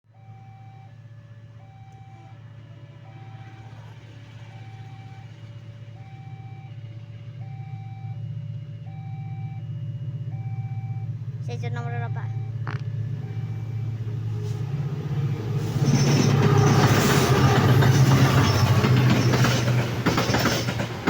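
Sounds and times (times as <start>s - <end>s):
level crossing alarm: 0.1s - 3.6s, 6.0s - 14.8s
diesel locomotive rumble: 0.1s - 21.0s.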